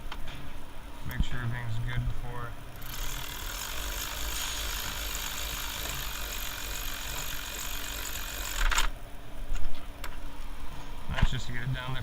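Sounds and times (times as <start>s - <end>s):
power ratchet whirring: 2.8s - 9.0s.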